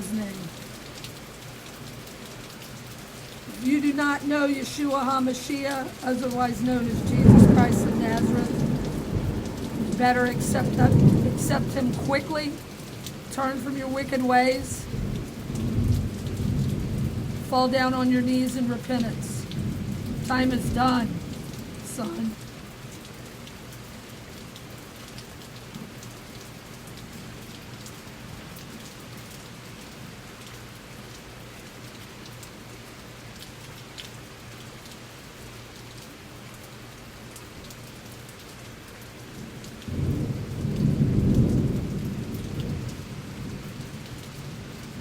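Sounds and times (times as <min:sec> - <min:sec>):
raindrops ticking: 0:00.0 - 0:45.0
steady rain falling: 0:00.0 - 0:45.0
thunder rumble: 0:03.5 - 0:22.4, 0:39.9 - 0:45.0.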